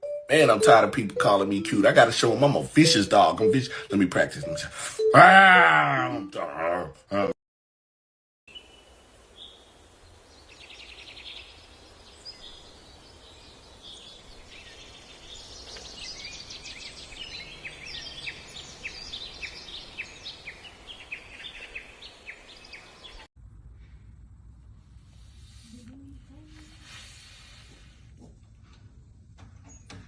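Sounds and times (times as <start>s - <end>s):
birds chirping and trilling: 0.3s - 7.2s, 8.5s - 23.3s, 29.5s - 30.0s.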